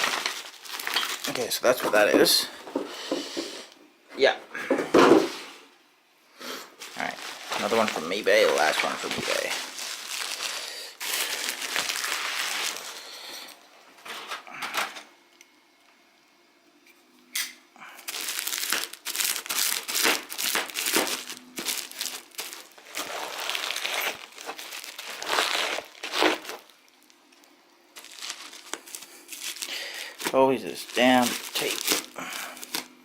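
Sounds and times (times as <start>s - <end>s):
packaging crinkling and tearing: 0.0s - 2.1s, 6.8s - 14.4s, 18.0s - 33.0s.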